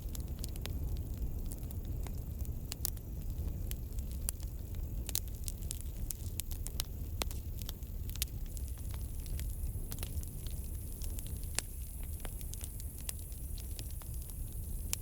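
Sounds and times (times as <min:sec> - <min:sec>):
campfire crackling and popping: 0:00.0 - 0:15.0
low rumble of burning: 0:00.0 - 0:15.0.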